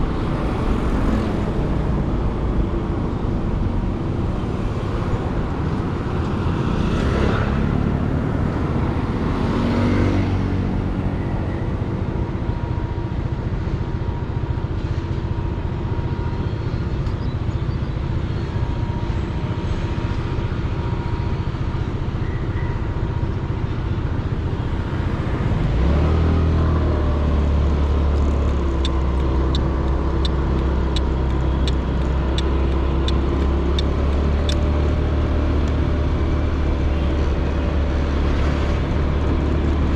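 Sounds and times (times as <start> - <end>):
road rumble: 0.0 - 39.9
regular ticking: 28.2 - 34.6.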